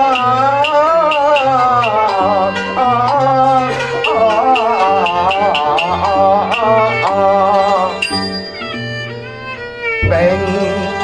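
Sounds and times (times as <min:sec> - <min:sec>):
light regular ticks: 0:00.0 - 0:02.0
wavering sliding melody: 0:00.0 - 0:11.0.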